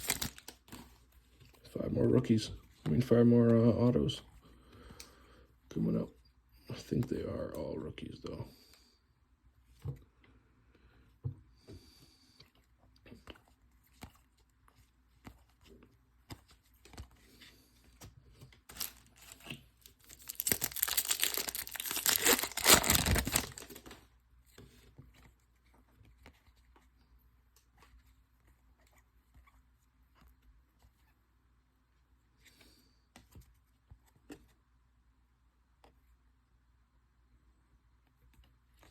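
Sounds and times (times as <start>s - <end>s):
wrapper tearing and crinkling: 0.0s - 0.7s, 18.7s - 24.0s
cards clicking and rustling: 0.0s - 1.6s, 15.1s - 24.0s.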